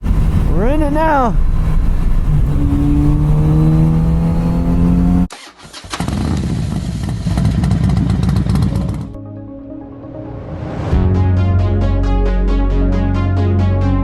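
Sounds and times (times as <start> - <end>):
motorcycle engine pulling: 2.0 - 9.2.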